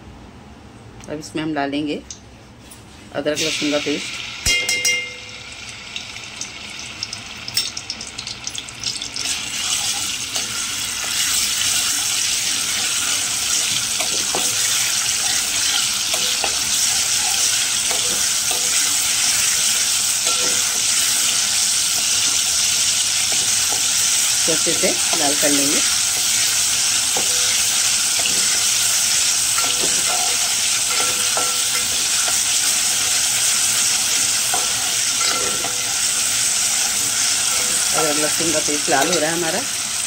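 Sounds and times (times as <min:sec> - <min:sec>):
spoon clinking against pot: 0:04.4 - 0:05.4, 0:29.5 - 0:32.6, 0:34.5 - 0:36.0
paste sizzling in hot oil: 0:05.6 - 0:40.0.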